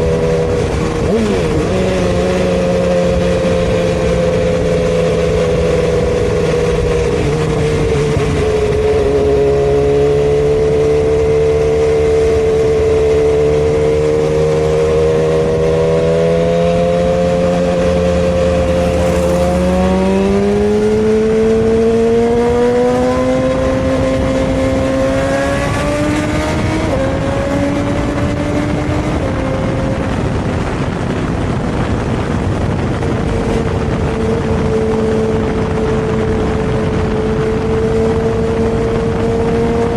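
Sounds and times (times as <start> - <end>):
motorcycle engine running: 0.0 - 39.9
rushing noise: 17.4 - 21.8.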